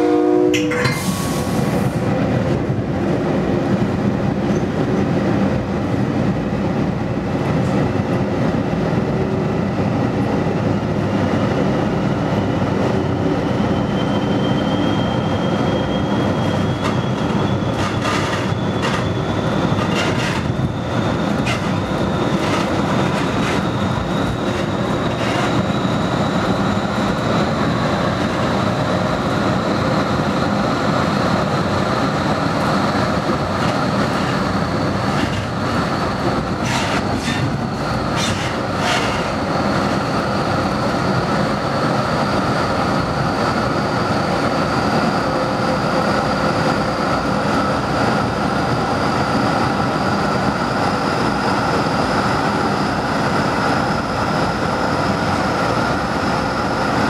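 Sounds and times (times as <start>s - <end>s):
train wheels rumbling on rails: 0.0s - 57.0s
wheels clacking over track joints: 16.8s - 25.8s, 33.4s - 40.0s.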